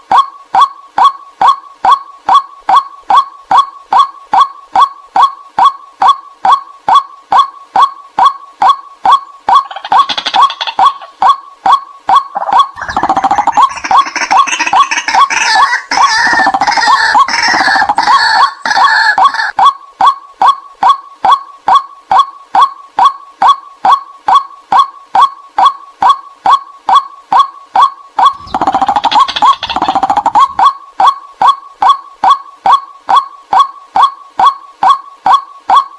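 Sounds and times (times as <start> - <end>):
overlapping bird calls: 0.0 - 35.9
rapid harsh bird chattering: 9.5 - 11.3, 12.2 - 19.5, 28.2 - 30.7.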